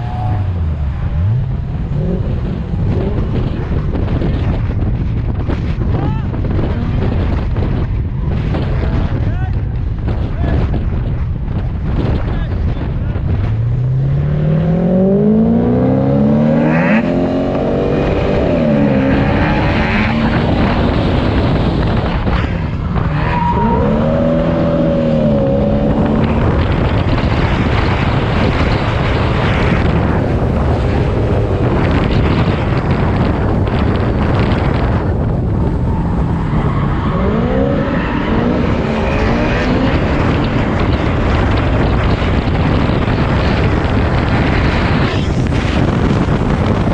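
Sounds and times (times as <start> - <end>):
wind and tyre noise: 0.0 - 46.9
car engine revving hard: 13.6 - 22.0, 35.2 - 43.2.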